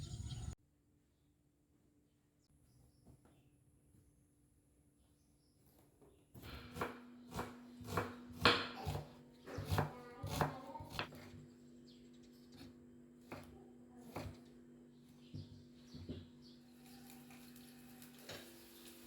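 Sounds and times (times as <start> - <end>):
knife chopping on cutting board: 6.4 - 11.3, 12.6 - 14.5
steady low hum: 6.4 - 16.9.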